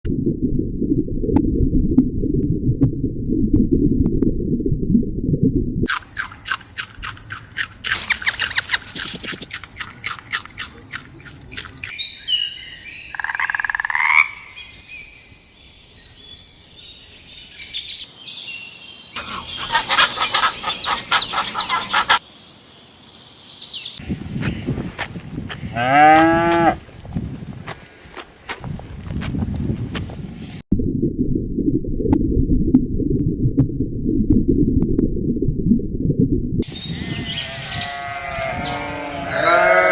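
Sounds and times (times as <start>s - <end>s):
frogs croaking: 12.9s - 14.7s, 19.2s - 22.2s.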